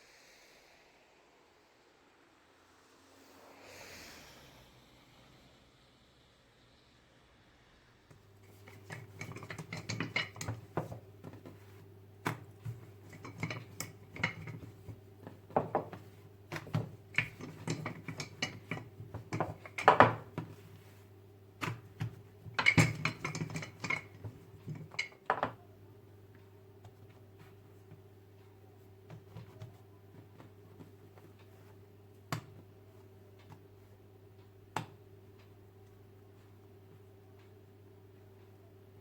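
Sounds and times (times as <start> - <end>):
dishes and cutlery clattering: 8.4 - 20.8, 21.6 - 25.6.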